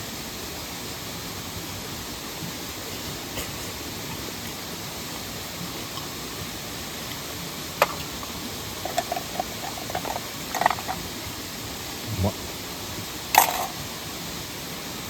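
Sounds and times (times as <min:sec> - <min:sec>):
rushing waterfall and stream: 0:00.0 - 0:15.0
light taps and clinks: 0:07.8 - 0:11.1.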